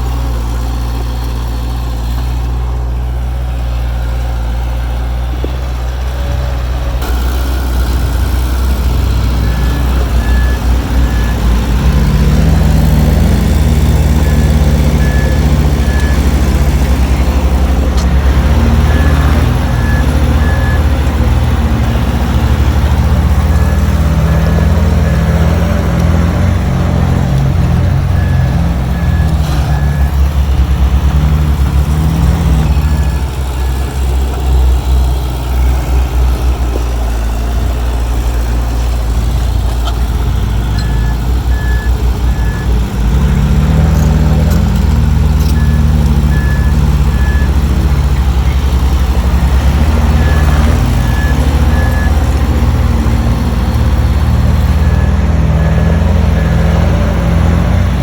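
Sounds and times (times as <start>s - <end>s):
heavy diesel engine working: 0.0s - 58.0s
backup alarm beeping: 23.4s - 34.2s.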